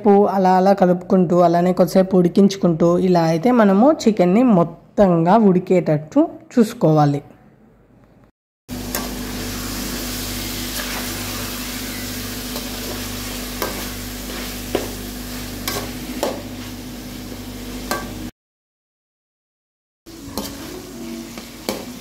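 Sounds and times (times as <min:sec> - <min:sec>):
chicken sizzling in hot oil: 0:08.7 - 0:18.3, 0:20.1 - 0:22.0
spatula scraping a metal pan: 0:20.3 - 0:22.0.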